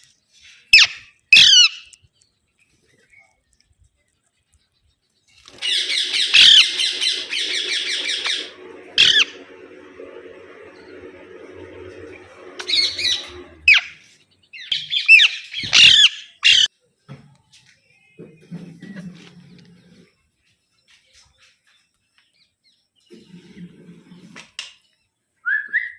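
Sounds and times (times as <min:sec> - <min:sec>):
parrots screeching: 0:00.5 - 0:01.9, 0:05.5 - 0:09.4, 0:12.6 - 0:14.0, 0:14.6 - 0:16.7.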